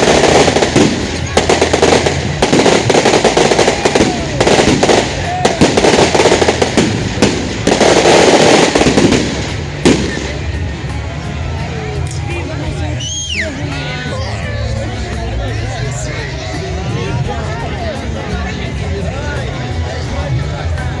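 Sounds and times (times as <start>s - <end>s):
firecrackers crackling: 0.0s - 11.1s.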